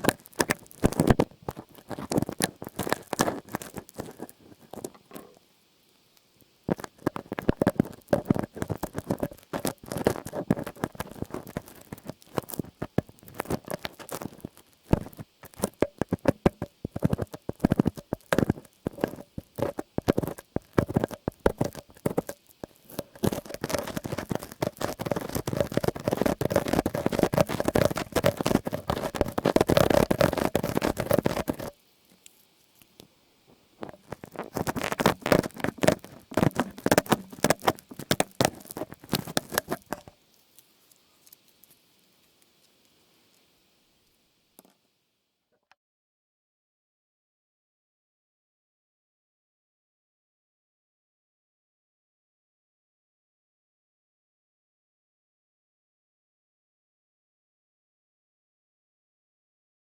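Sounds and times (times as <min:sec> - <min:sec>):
rapid clicks and scratching: 0:00.0 - 0:05.4, 0:06.7 - 0:32.3, 0:33.8 - 0:40.2
continuous rubbing: 0:00.0 - 0:05.5, 0:06.7 - 0:33.0, 0:33.6 - 0:42.7.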